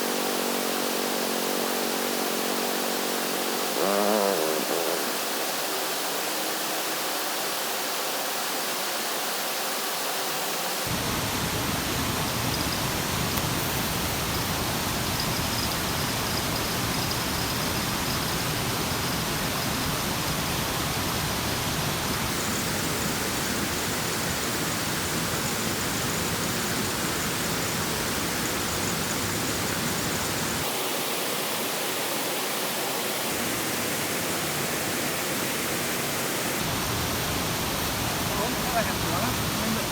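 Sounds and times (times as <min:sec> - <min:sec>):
water rushing: 0:10.9 - 0:22.7, 0:30.3 - 0:39.9.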